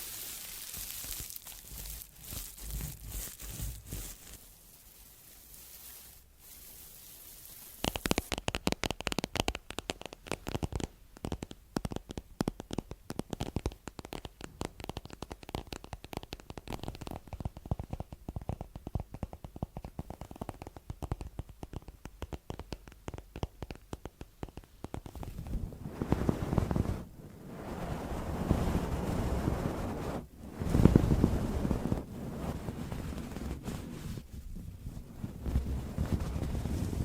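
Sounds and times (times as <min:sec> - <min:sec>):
rapid crackling and tapping: 0:00.0 - 0:04.4, 0:07.4 - 0:27.1, 0:28.4 - 0:37.0
faint hiss: 0:00.0 - 0:37.0.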